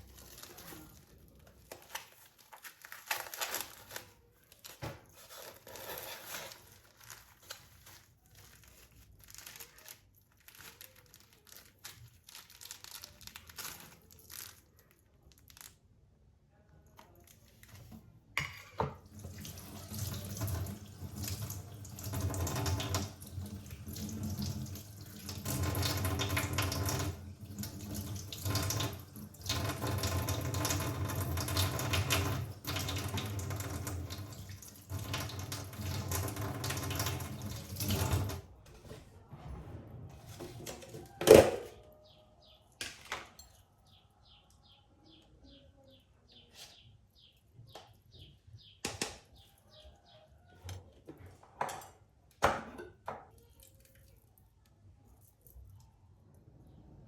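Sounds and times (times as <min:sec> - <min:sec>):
tap water running into sink: 0:18.8 - 0:38.4.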